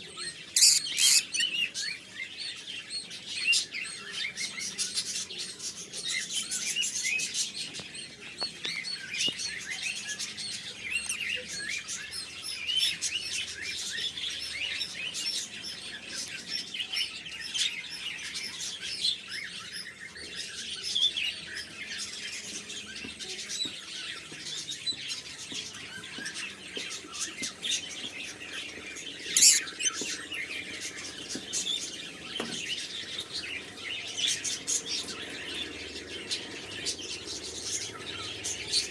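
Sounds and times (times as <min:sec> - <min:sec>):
lovebirds chirping: 0:00.0 - 0:02.2, 0:08.6 - 0:12.4, 0:27.0 - 0:35.8.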